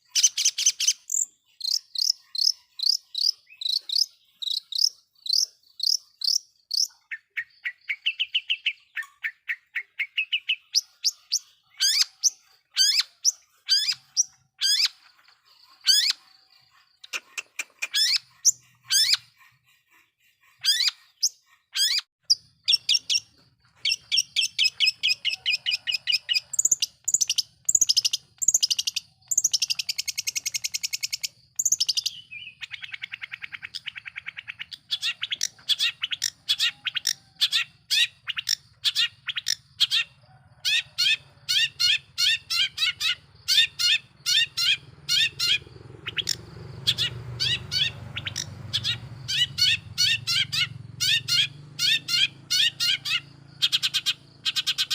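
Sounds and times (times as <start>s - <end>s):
shrike singing: 34.8s - 54.9s.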